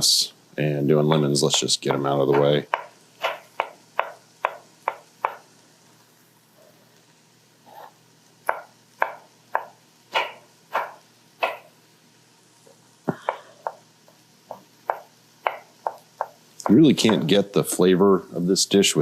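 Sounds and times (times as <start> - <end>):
knife chopping on cutting board: 1.5 - 5.4, 8.5 - 11.7, 14.5 - 17.3.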